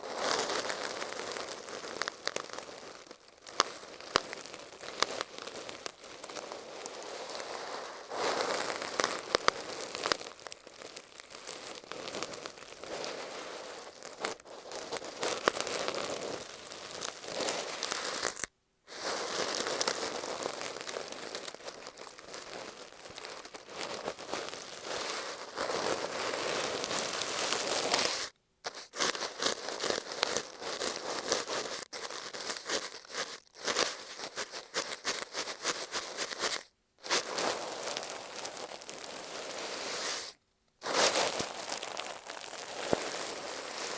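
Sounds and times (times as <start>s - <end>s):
brush bristles scratching tape: 17.2s - 20.2s, 23.9s - 37.7s, 39.7s - 41.9s.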